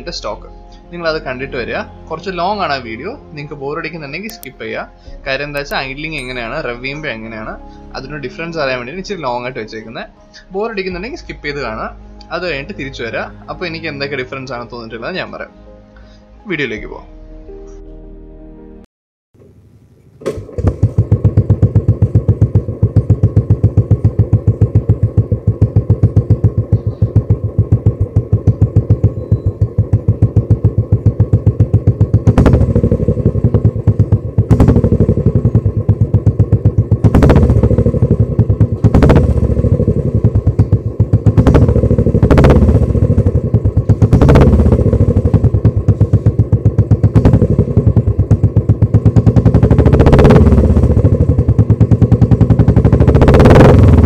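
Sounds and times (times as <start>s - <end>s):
motorcycle engine revving: 20.2s - 54.0s
motorcycle engine idling: 20.3s - 54.0s.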